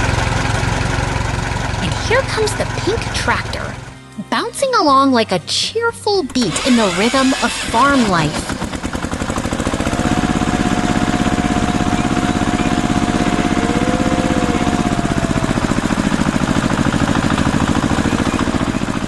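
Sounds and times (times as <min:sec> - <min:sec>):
small tractor engine chugging: 0:00.0 - 0:04.0, 0:06.3 - 0:19.0
rising and falling tone: 0:11.2 - 0:17.2.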